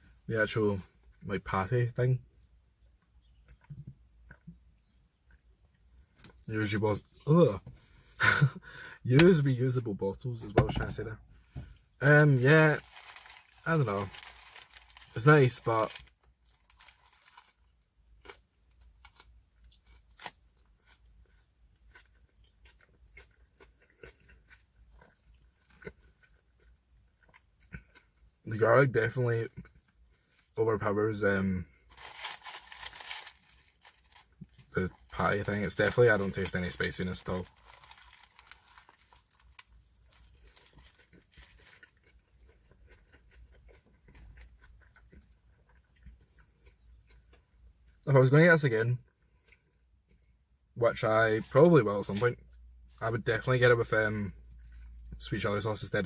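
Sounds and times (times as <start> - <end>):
crunchy chewing: 11.8 - 28.4, 31.3 - 48.1.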